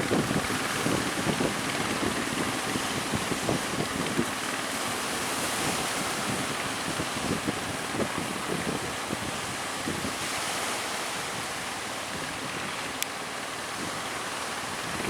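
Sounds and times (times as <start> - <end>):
waves splashing: 0.0 - 15.0
wind buffeting microphone: 0.0 - 15.0.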